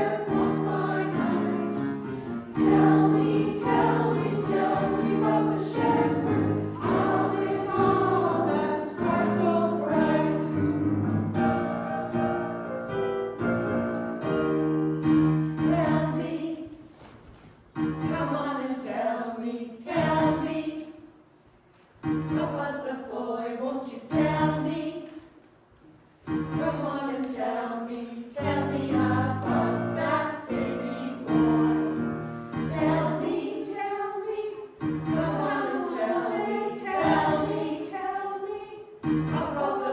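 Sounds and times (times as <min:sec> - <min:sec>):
piano accompaniment: 0:00.0 - 0:16.3, 0:28.4 - 0:33.6, 0:34.8 - 0:37.8, 0:39.0 - 0:39.9
women's choir singing in harmony: 0:00.0 - 0:17.0, 0:17.8 - 0:21.2, 0:22.1 - 0:25.4, 0:26.3 - 0:39.9.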